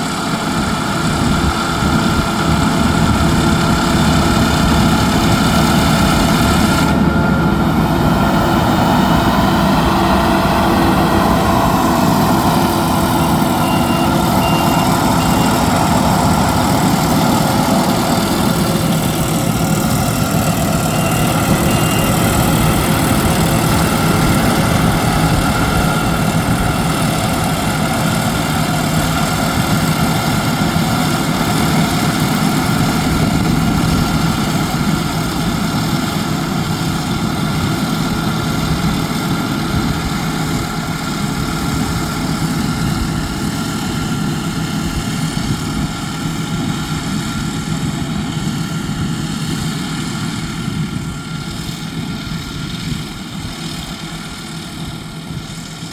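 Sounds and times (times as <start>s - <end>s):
combine harvester droning: 0.0s - 55.9s.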